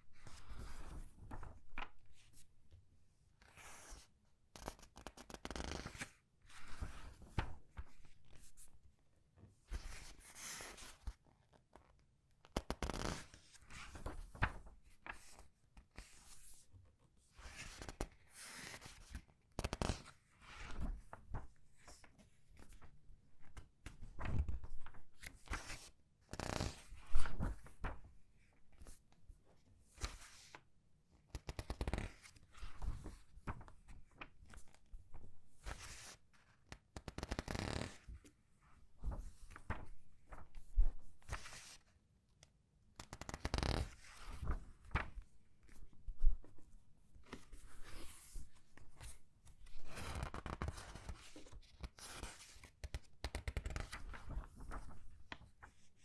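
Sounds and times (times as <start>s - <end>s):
paper pages rustling: 39.0s - 41.9s, 43.1s - 46.6s, 47.3s - 56.0s.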